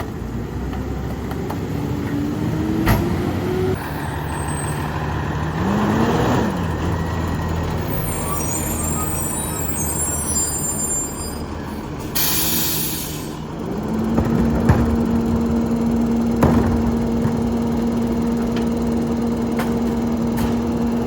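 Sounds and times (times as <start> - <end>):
diesel truck engine revving: 0.0 - 21.0
air brakes hissing: 7.7 - 13.6.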